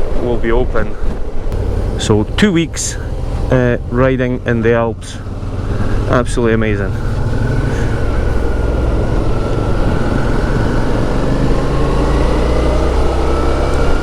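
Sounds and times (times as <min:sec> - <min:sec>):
wind rushing over microphone: 0:00.0 - 0:14.0
motorcycle engine running: 0:01.5 - 0:14.0.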